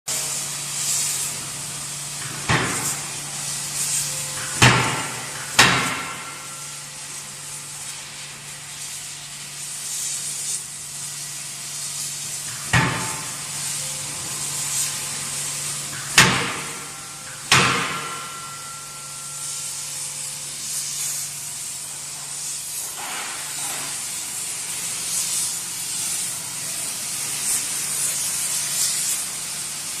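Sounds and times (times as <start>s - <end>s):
continuous hissing: 0.2s - 30.0s
metallic ring: 2.8s - 7.3s, 15.6s - 21.7s.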